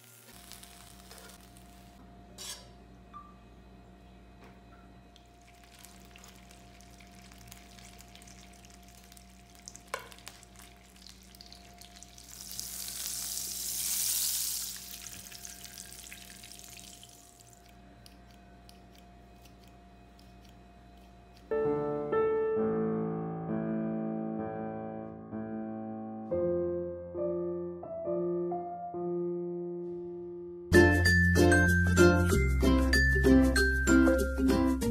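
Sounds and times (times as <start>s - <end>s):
butter sizzling in a pan: 0.0s - 2.0s, 5.4s - 17.6s
piano music: 21.5s - 34.9s.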